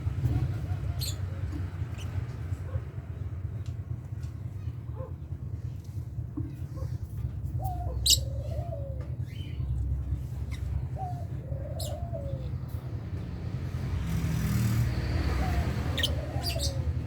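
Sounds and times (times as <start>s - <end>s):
birds chirping: 0.0s - 2.7s, 7.5s - 17.0s
birds gliding calls: 0.0s - 2.7s, 6.8s - 13.1s, 14.0s - 17.0s
steady low rumble: 0.0s - 13.9s
steady low hum: 1.8s - 13.9s
lovebirds chirping: 7.6s - 8.6s, 11.6s - 12.5s, 15.2s - 17.0s.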